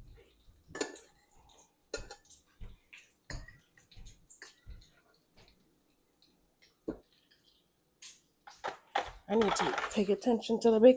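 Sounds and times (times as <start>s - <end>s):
kitchen utensils and dishes clinking: 0.7s - 5.0s, 8.5s - 10.7s.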